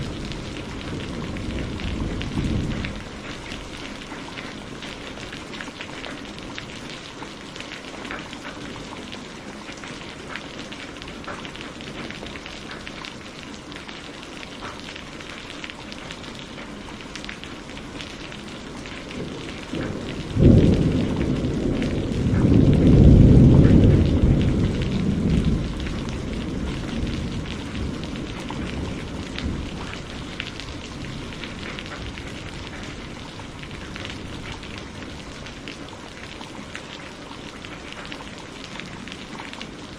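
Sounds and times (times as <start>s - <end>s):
thunderclap rumbling: 0.0s - 4.1s, 18.8s - 36.0s
steady rain: 0.0s - 39.9s.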